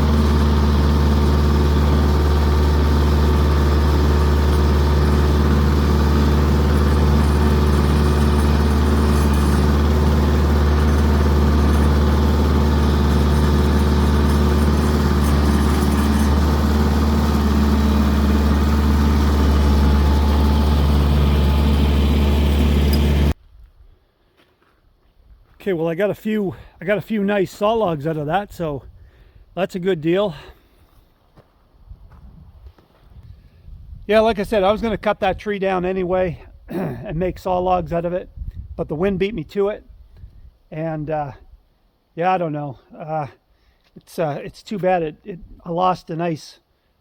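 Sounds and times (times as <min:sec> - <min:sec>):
tractor diesel engine running: 0:00.0 - 0:23.4.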